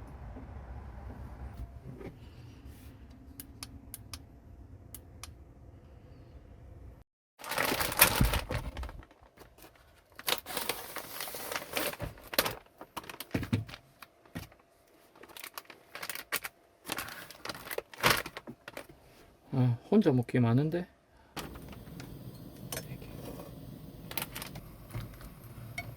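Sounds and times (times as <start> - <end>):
plastic packaging crinkling: 7.4 - 14.3, 15.0 - 18.9.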